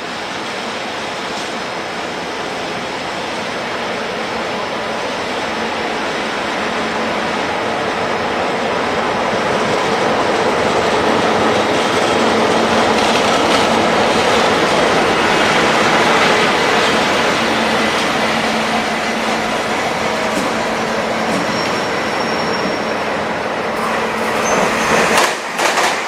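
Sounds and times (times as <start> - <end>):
train wheels clattering on rails: 9.1 - 26.0.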